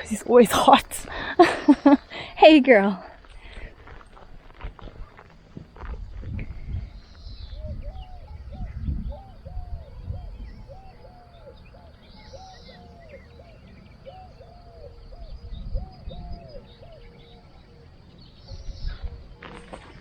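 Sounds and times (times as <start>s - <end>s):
small birds chirping faintly: 0.0s - 20.0s
footsteps on ground: 0.6s - 7.6s, 19.1s - 20.0s
bird hooting calls: 4.8s - 20.0s.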